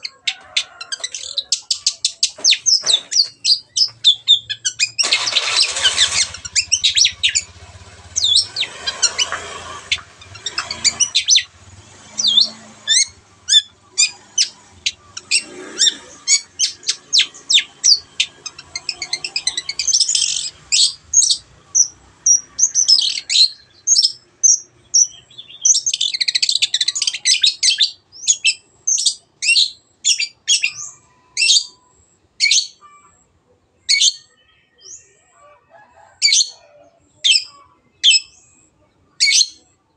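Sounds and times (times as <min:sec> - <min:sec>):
bird chattering: 0:00.0 - 0:31.8
bird singing high chirps: 0:00.0 - 0:33.0, 0:37.2 - 0:39.8.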